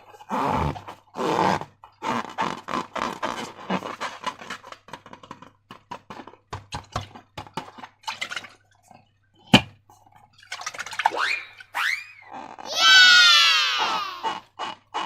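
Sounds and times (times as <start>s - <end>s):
rubbery squeak: 0.0s - 5.2s, 10.8s - 15.0s.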